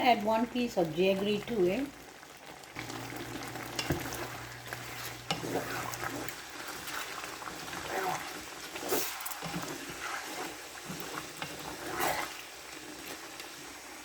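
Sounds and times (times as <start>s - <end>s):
chicken sizzling in a pan: 0.0s - 14.0s.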